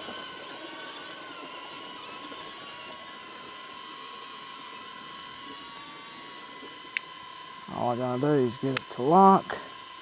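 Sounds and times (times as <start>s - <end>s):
drone propellers whining: 0.0s - 10.0s.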